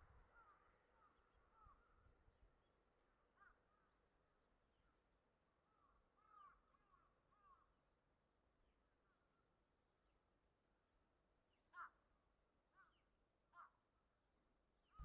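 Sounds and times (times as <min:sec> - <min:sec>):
faint bird calls: 0:00.3 - 0:02.1, 0:05.6 - 0:07.7, 0:11.5 - 0:13.9.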